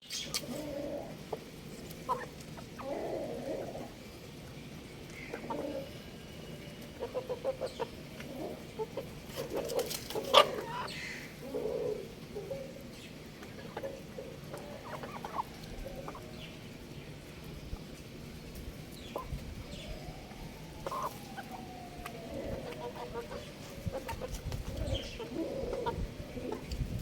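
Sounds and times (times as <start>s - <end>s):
rooster clucking: 22.1s - 26.7s.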